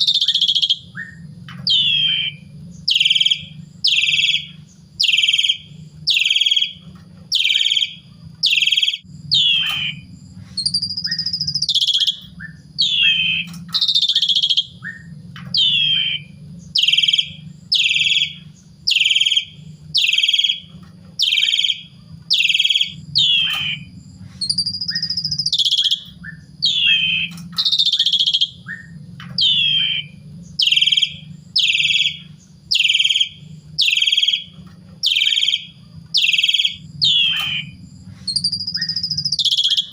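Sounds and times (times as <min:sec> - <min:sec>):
low hum: 0:00.0 - 0:39.9
starling calling: 0:00.0 - 0:39.9.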